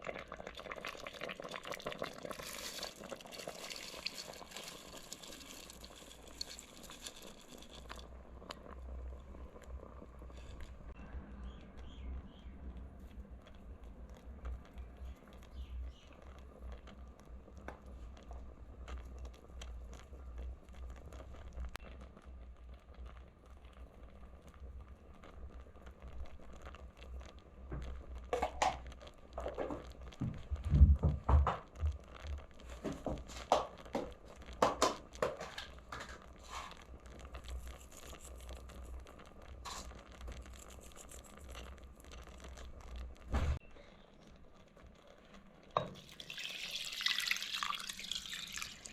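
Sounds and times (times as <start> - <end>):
rustling and crinkling: 1.9 - 10.9, 25.9 - 43.6.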